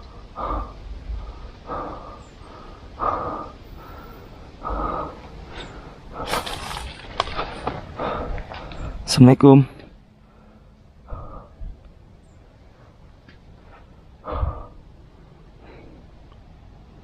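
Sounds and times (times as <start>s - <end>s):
man breathing through nose: 0.0s - 9.0s, 10.2s - 11.8s, 13.6s - 15.0s, 15.6s - 16.2s.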